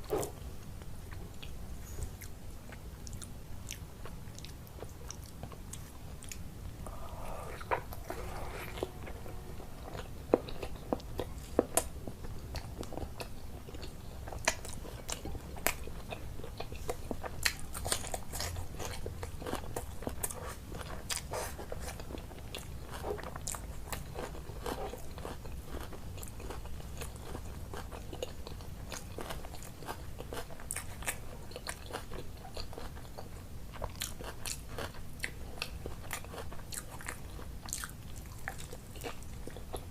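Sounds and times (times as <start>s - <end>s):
chewing crunchy food: 0.0s - 39.9s
wet mouth sounds: 6.3s - 9.2s.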